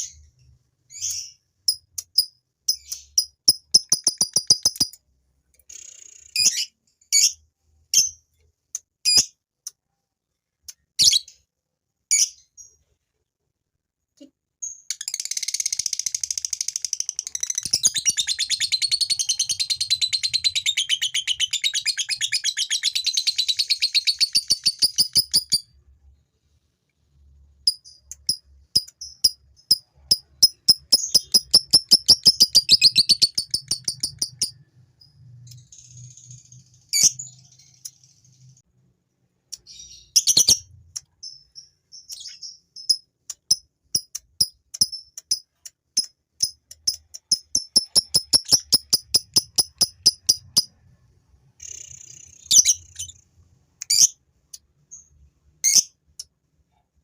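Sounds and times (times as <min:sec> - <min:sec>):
lovebird fast chattering song: 0:00.9 - 0:05.0, 0:15.0 - 0:25.7, 0:27.7 - 0:34.6, 0:39.6 - 0:50.7
sharp clicks: 0:02.9 - 0:05.7, 0:27.7 - 0:34.5, 0:43.2 - 0:50.7.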